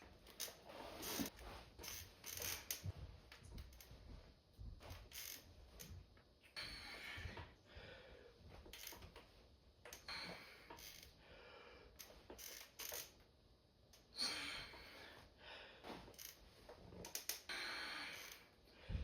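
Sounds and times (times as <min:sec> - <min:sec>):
gym equipment clicks and clanks: 0:00.2 - 0:04.0, 0:08.7 - 0:11.2, 0:12.0 - 0:13.2, 0:15.9 - 0:17.5.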